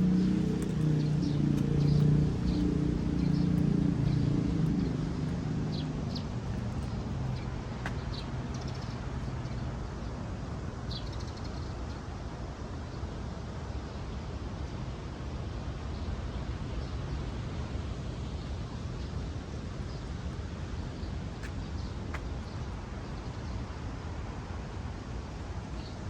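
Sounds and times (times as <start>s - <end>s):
vehicle engine running low: 0.0s - 8.5s.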